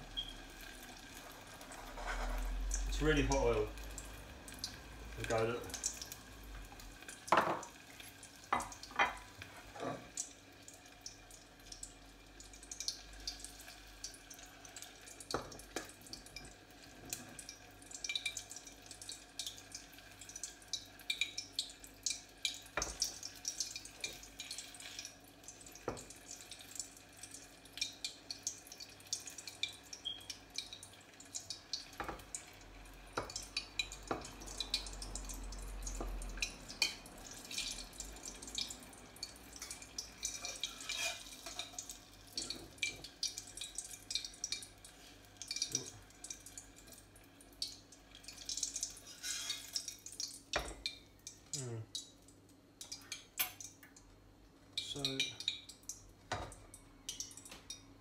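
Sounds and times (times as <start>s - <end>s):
tomatoes sizzling in oil: 0.0s - 52.2s.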